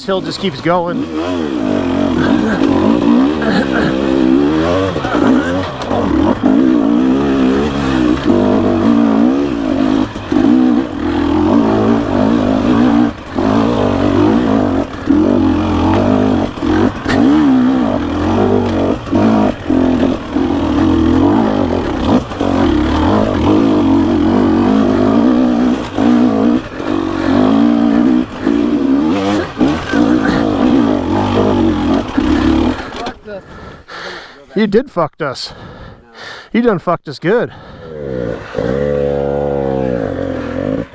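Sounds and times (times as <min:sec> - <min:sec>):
dirt bike engine revving: 0:00.0 - 0:34.0, 0:37.6 - 0:40.9.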